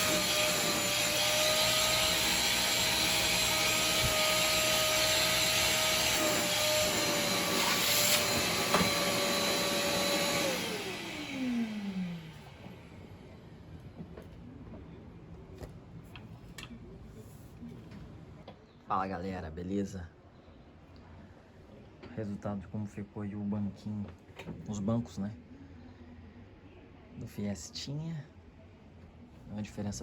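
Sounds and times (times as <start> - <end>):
vacuum cleaner whining: 0.0 - 14.3.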